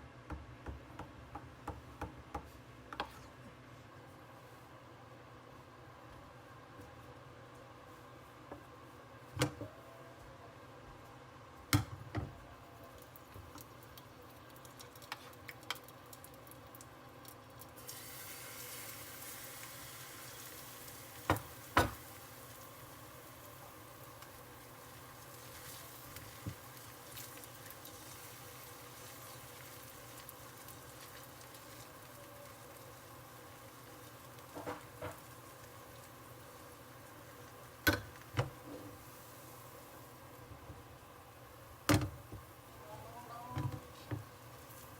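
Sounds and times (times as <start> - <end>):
food sizzling in a pan: 12.9 - 44.9
cookware knocks and clanks: 37.9 - 38.5, 41.9 - 42.2.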